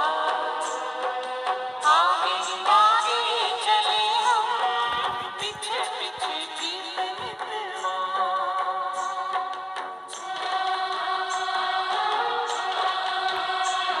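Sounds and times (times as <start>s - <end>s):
choir singing held notes: 0.0s - 3.0s, 7.8s - 14.0s.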